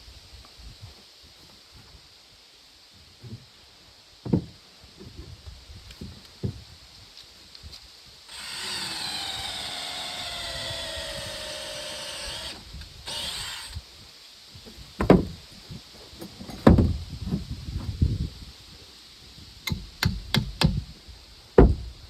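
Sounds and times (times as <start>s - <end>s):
heavy wooden thumps: 8.3s - 13.8s, 14.8s - 15.5s, 16.6s - 17.5s, 21.6s - 22.0s
power tool cutting wood: 8.3s - 13.8s.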